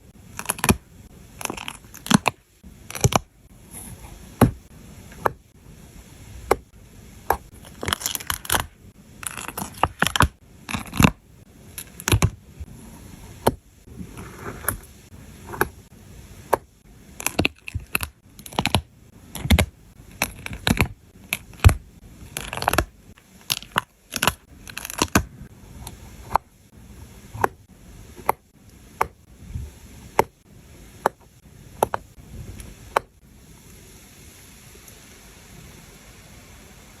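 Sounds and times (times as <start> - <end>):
faint steady hiss: 0.0 - 37.0
paper rustling and scraping: 12.7 - 15.7.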